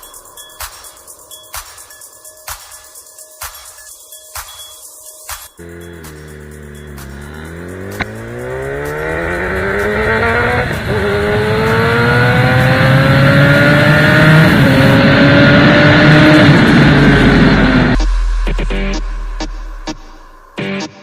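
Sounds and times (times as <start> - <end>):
superbike engine accelerating: 5.6 - 19.1.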